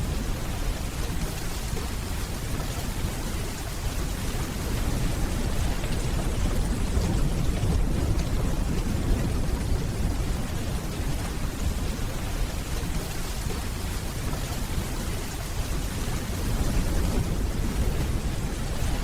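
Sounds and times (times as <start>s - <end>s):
distant thunder rumbling: 0.0s - 14.8s
steady rainfall: 0.0s - 19.0s.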